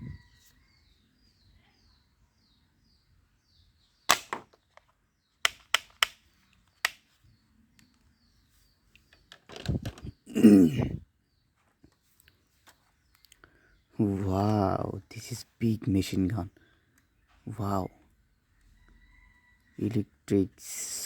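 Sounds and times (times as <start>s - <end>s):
toy gun cracks: 4.1s - 4.6s, 5.5s - 7.0s.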